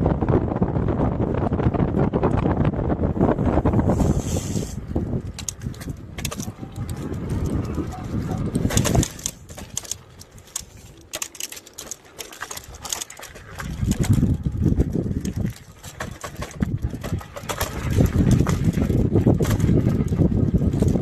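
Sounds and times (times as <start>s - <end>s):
wind buffeting microphone: 0.0s - 21.0s
light clicks and rattles: 5.3s - 18.7s.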